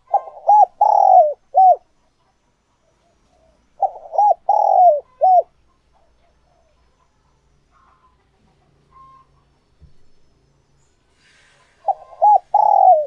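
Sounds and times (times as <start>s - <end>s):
dove cooing: 0.0s - 1.8s, 3.8s - 5.5s, 11.8s - 13.0s.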